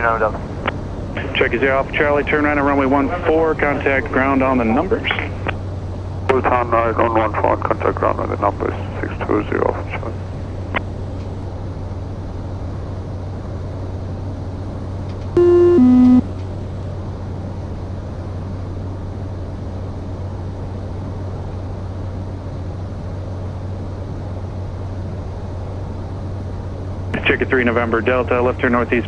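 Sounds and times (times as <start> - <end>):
turboprop engine drone in cockpit: 0.0 - 29.0
two-note electronic tone: 15.4 - 16.3.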